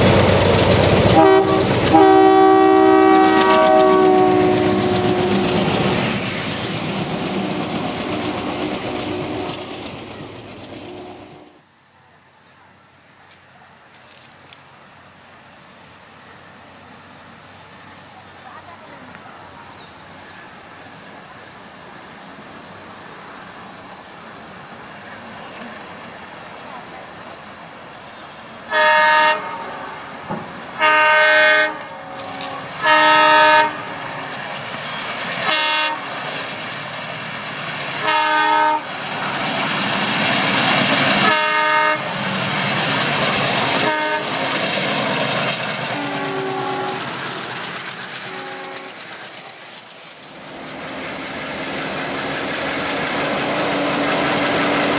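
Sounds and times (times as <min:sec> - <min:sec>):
train wheels clattering over rail joints: 0:00.0 - 0:11.1, 0:42.1 - 0:54.9
diesel locomotive engine rumble: 0:00.0 - 0:54.9
multi-tone train horn blasts: 0:01.1 - 0:06.1, 0:07.0 - 0:09.8, 0:10.8 - 0:11.6, 0:28.6 - 0:30.1, 0:30.7 - 0:34.4, 0:35.4 - 0:36.3, 0:38.0 - 0:39.0, 0:41.1 - 0:42.2, 0:43.7 - 0:44.4, 0:45.9 - 0:47.2, 0:48.2 - 0:49.1.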